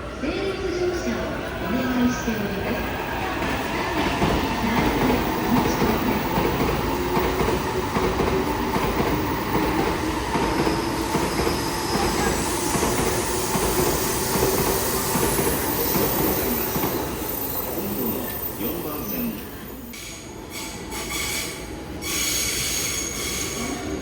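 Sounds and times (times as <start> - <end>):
train wheels rumbling on rails: 0.0 - 19.2.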